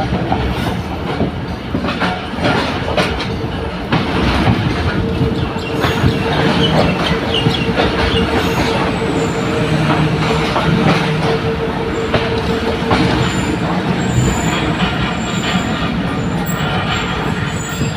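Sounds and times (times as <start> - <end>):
train rumble: 0.0 - 17.9
train wheel clicks: 0.0 - 17.9
high wheel squeal: 13.0 - 17.9.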